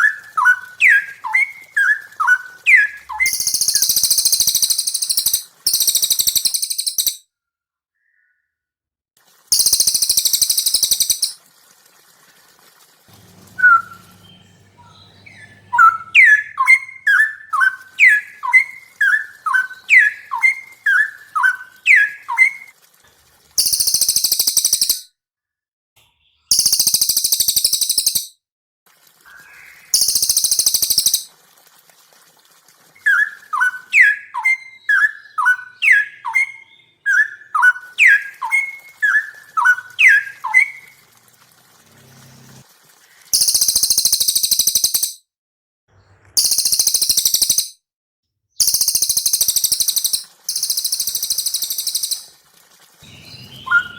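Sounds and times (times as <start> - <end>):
downward-slurred whistled bird notes: 0.0 - 7.2, 13.5 - 22.7, 33.0 - 40.9, 48.6 - 52.3, 53.0 - 53.9
high dense bird trills: 13.2 - 22.7, 53.0 - 53.9.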